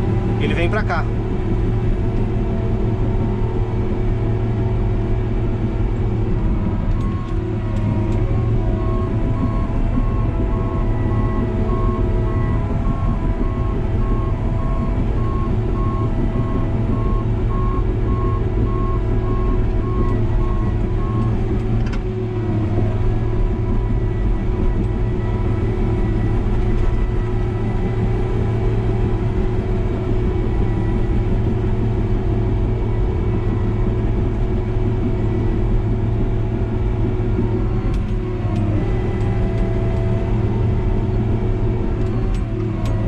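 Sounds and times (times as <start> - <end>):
dozer diesel engine under load: 0.0 - 43.0
backup alarm beeping: 7.0 - 21.4.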